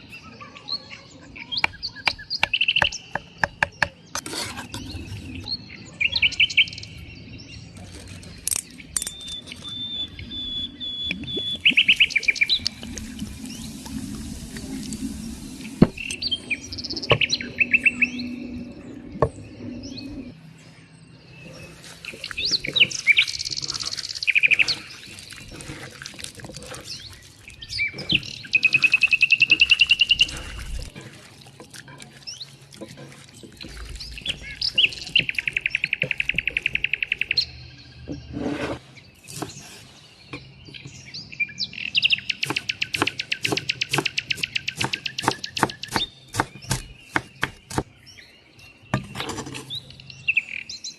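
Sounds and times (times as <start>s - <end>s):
songbirds singing: 0.0s - 50.9s.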